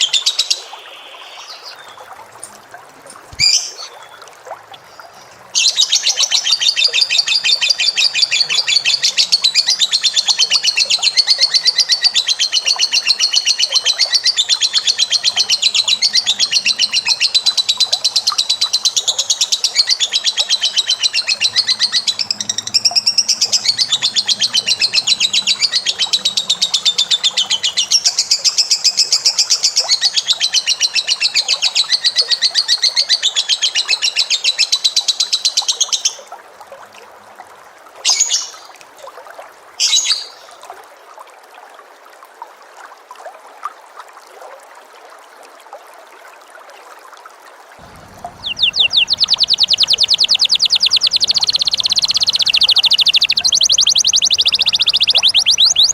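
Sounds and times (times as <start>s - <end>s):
short bird calls: 47.8s - 55.9s
bird fast high trill: 47.9s - 55.9s.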